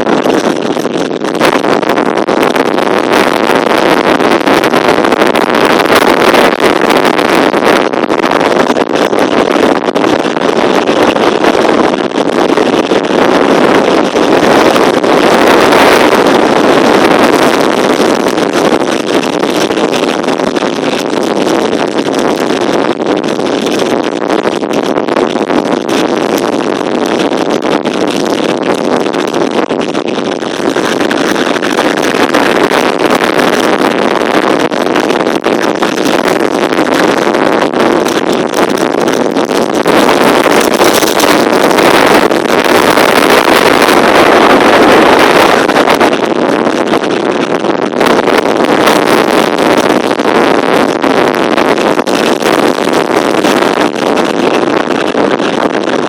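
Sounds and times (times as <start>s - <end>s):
strong wind buffeting microphone: 0.0s - 56.0s.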